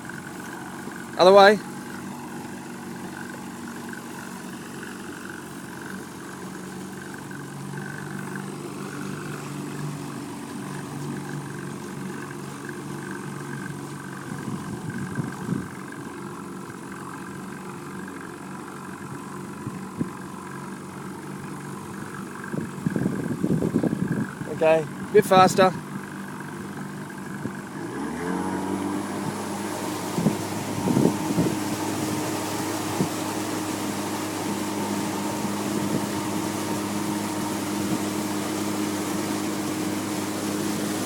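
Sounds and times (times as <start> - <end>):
outboard motor running: 0.0 - 41.0.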